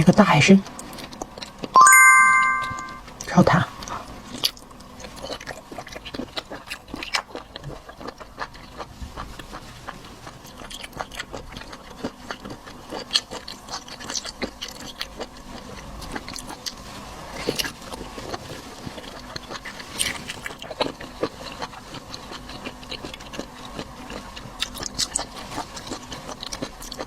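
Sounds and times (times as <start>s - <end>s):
person chewing: 5.2s - 8.9s, 10.5s - 16.7s, 17.6s - 27.0s.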